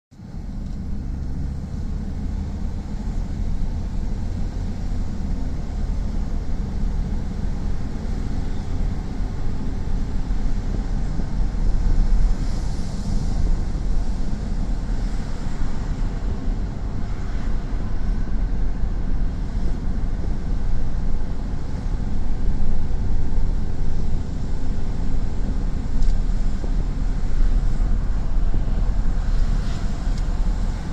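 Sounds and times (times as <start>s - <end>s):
hiss of surf: 11.9s - 16.2s, 23.7s - 30.9s.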